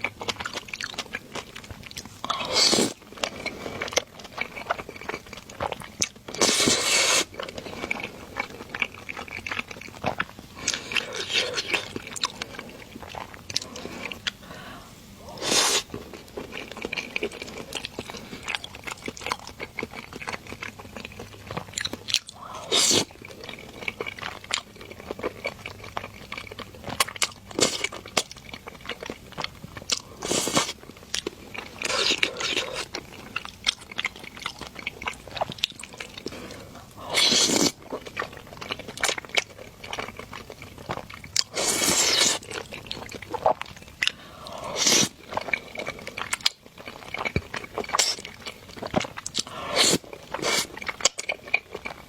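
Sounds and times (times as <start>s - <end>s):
wet chewing and smacking: 0.0s - 52.0s
breathy noodle slurps: 6.4s - 8.1s, 14.8s - 15.9s, 36.4s - 37.8s, 44.2s - 45.8s, 49.4s - 50.7s.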